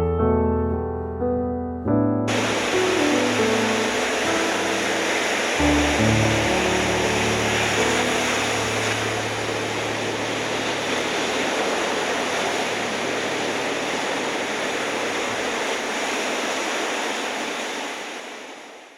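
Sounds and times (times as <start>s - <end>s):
waves breaking: 2.3s - 18.9s
low steady hum: 5.2s - 15.5s.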